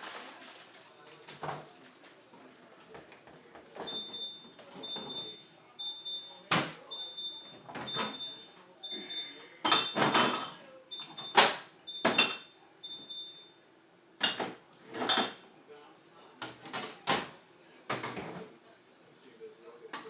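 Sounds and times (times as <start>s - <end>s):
objects knocking and clattering: 9.6s - 10.6s, 14.2s - 15.4s, 16.4s - 18.5s.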